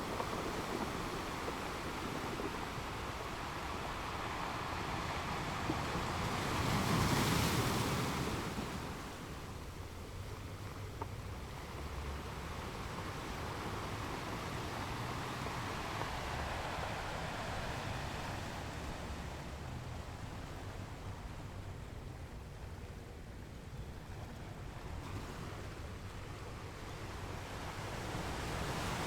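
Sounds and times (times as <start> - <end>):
sea waves washing: 0.0 - 22.2.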